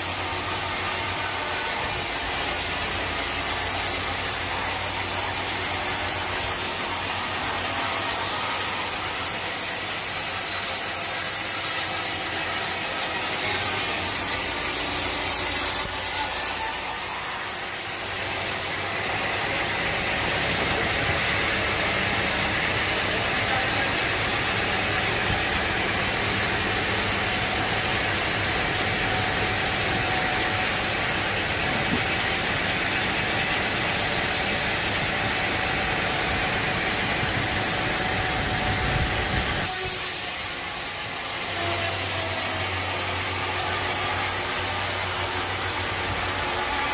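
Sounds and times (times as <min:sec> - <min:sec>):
sawmill machinery running: 0:00.0 - 0:46.9.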